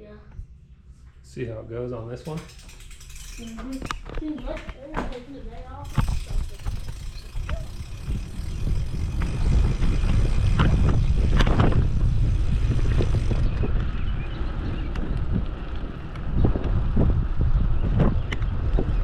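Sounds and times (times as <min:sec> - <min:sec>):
bike clicks and rattles: 0:02.0 - 0:19.0
wind buffeting microphone: 0:02.2 - 0:19.0.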